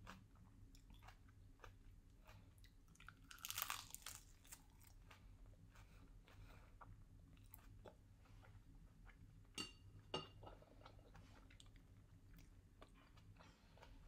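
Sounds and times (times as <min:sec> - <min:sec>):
chewing mouth sounds: 0:00.0 - 0:09.3.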